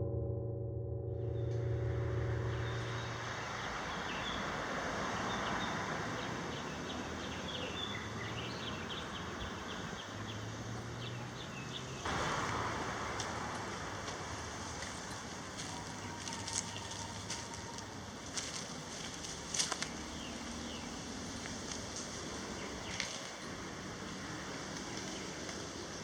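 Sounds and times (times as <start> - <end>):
distant noise: 1.2 - 8.2, 9.1 - 26.0
wind rushing: 12.1 - 16.4
small birds chirping: 18.5 - 26.0.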